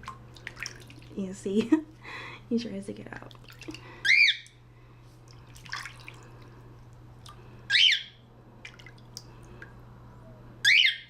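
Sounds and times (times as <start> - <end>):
cockatiel squawking: 4.0 - 4.4, 7.7 - 8.2, 10.6 - 11.0.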